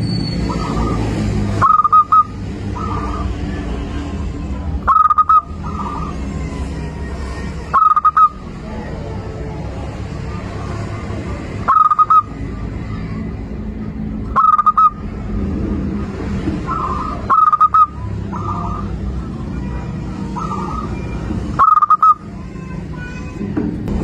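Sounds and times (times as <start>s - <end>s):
steady low hum: 0.0s - 21.6s
dove cooing: 0.4s - 6.6s, 7.4s - 12.7s, 14.3s - 15.1s, 16.6s - 22.3s.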